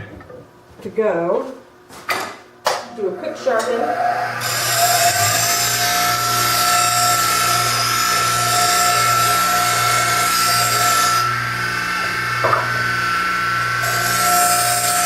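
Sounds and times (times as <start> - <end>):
electric grinder motor hum: 3.6 - 15.0.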